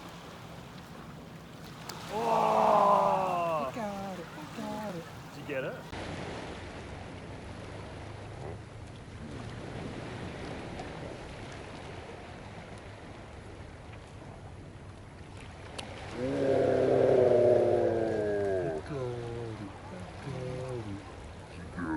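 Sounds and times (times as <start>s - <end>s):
waves washing at shoreline: 0.0s - 21.9s
wind on microphone: 16.0s - 21.9s.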